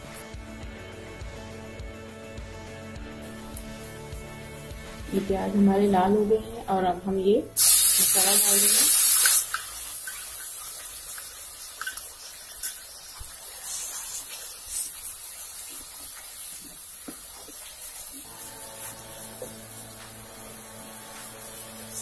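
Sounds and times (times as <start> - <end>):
paste sizzling in hot oil: 7.6 - 22.0.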